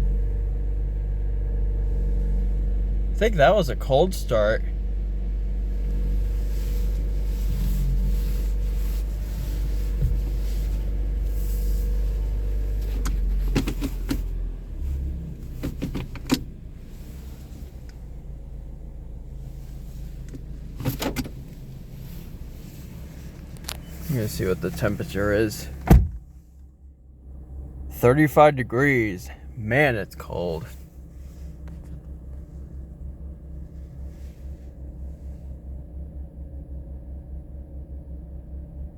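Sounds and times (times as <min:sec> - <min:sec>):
car engine idling: 0:00.0 - 0:38.9
sharp clicks and knocks: 0:15.6 - 0:16.5.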